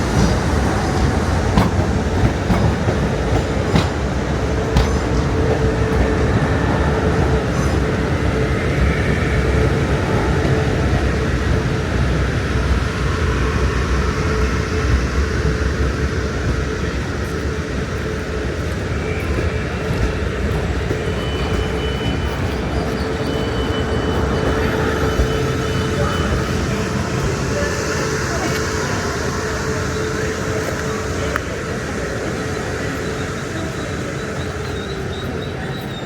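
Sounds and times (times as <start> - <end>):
electric train rumbling: 0.0 - 36.0.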